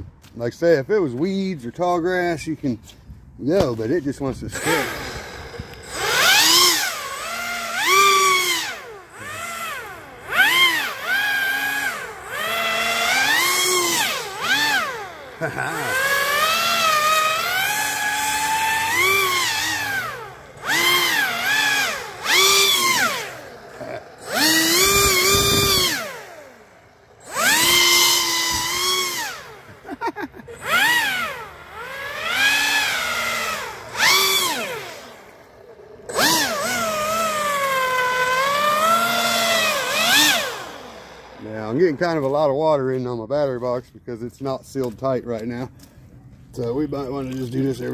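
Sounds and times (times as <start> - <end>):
model boat motor whining: 4.5 - 42.4.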